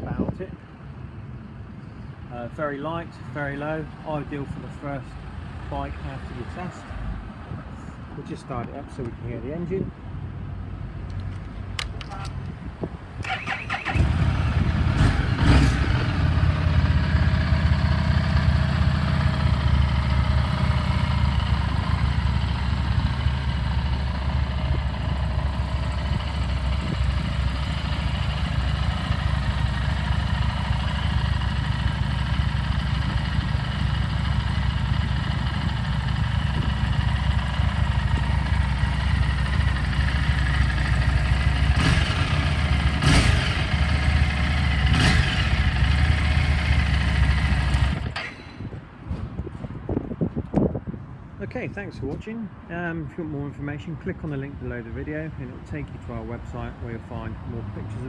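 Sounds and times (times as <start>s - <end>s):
motorcycle engine idling: 13.3s - 48.2s.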